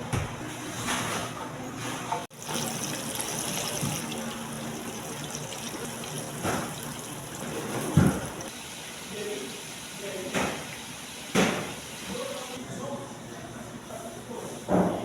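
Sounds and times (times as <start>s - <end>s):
tap water running into sink: 2.3s - 8.5s.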